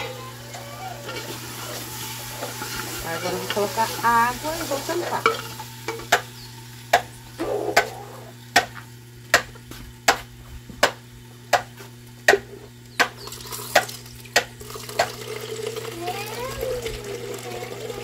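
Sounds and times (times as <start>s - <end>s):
vegetables sizzling in a pot: 0.0s - 10.1s, 11.1s - 18.0s.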